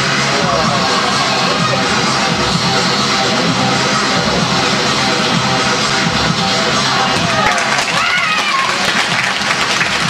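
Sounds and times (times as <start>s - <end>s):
loud music: 0.0s - 10.0s
crowd applauding: 7.0s - 10.0s.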